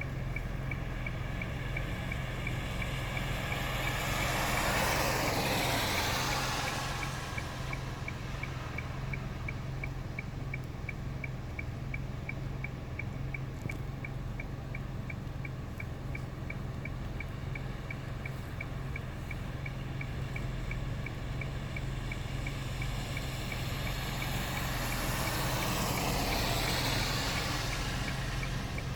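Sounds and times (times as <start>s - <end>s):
faint high tick: 5.9s - 28.9s.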